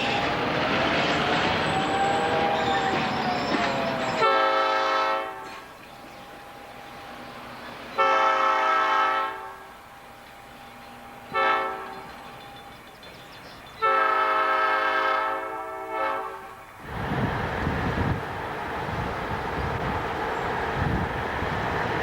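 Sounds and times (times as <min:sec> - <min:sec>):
locomotive air horn blasts: 0:01.8 - 0:05.8, 0:08.0 - 0:09.8, 0:11.3 - 0:12.2, 0:13.8 - 0:16.7
wind rumble on microphone: 0:16.8 - 0:22.0.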